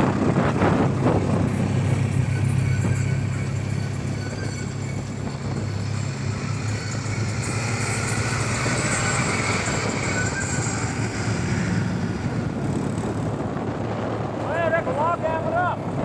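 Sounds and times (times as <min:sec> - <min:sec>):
road and wind noise: 0:00.0 - 0:16.0
vehicle engine running: 0:00.0 - 0:16.0.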